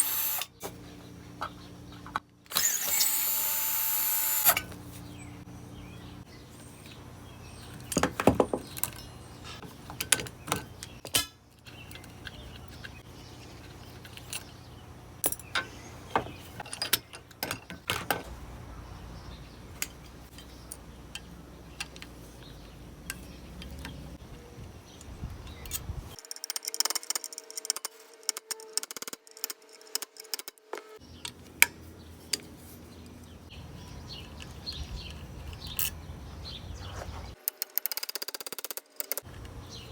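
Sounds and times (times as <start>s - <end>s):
metal tools clinking: 33.8s - 36.1s.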